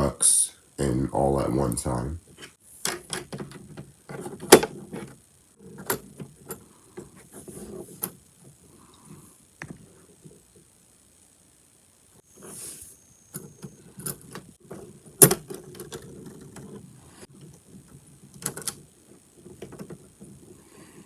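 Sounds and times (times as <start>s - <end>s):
small model parts clicking and knocking: 13.3s - 21.0s.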